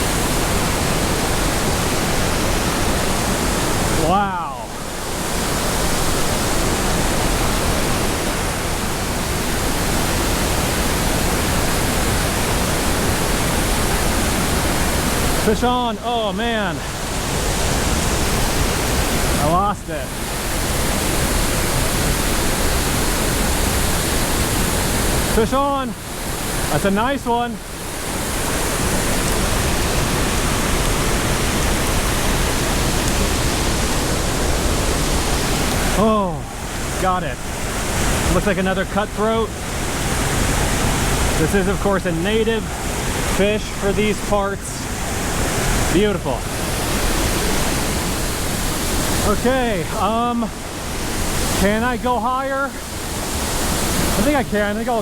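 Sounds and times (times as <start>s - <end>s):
waterfall roaring: 0.0s - 55.0s.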